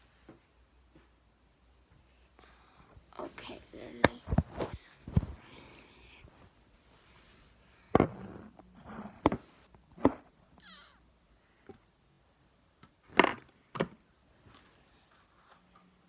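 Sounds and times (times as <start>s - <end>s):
knocks and thuds of objects: 7.9s - 8.3s.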